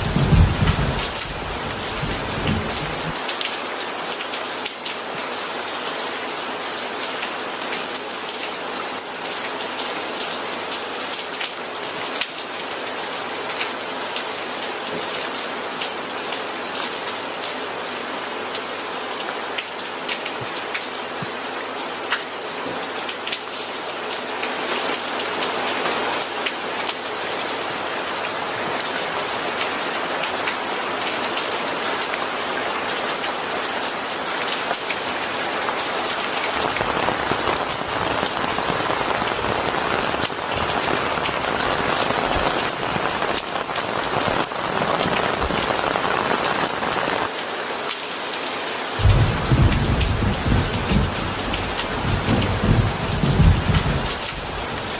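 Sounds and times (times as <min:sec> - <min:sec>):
rain on a hard surface: 0:00.0 - 0:54.9.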